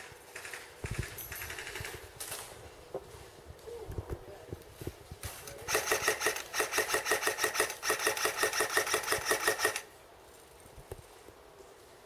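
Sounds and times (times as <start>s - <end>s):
airsoft gun full-auto burst: 5.7s - 9.9s.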